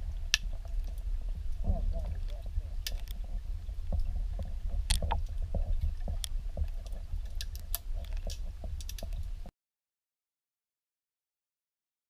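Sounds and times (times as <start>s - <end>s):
small splashes and ticks: 0.0s - 9.5s
steady low rumble: 0.0s - 9.5s
water lapping against hull: 0.0s - 9.5s.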